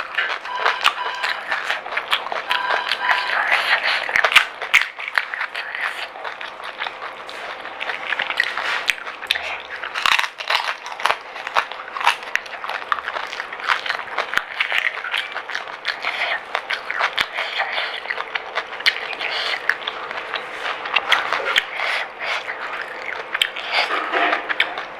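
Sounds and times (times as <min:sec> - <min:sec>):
crunchy shells being chewed: 0:00.0 - 0:24.9.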